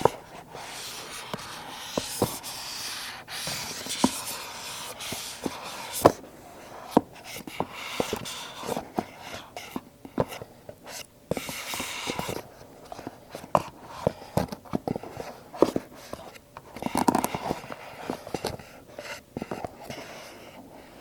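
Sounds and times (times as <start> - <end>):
soft rubbing and sliding: 0.0 - 21.0.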